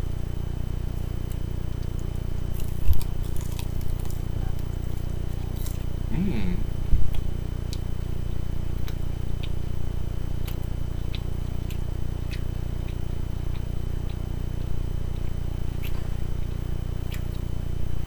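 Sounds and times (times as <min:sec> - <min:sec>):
low hum: 0:00.0 - 0:18.0
chewing wet clicks: 0:08.8 - 0:09.6, 0:10.4 - 0:17.5.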